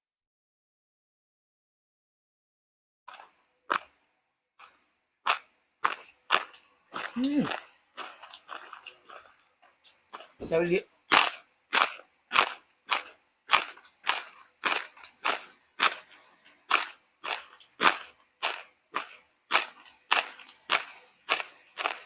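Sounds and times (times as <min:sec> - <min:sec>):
person chewing crunchy food: 0:03.1 - 0:04.0, 0:04.6 - 0:22.0.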